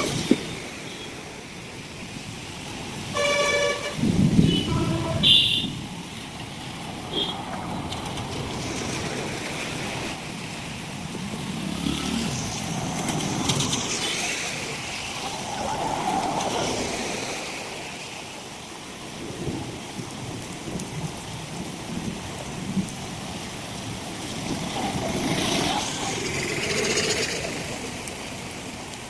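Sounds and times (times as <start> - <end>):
traffic passing in heavy rain: 0.0 - 29.0
car horn toot: 3.1 - 5.8.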